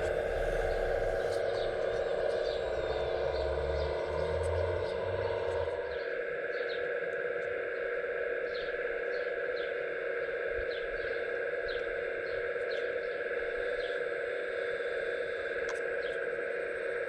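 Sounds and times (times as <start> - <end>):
hydraulic pump whine: 0.0 - 6.3.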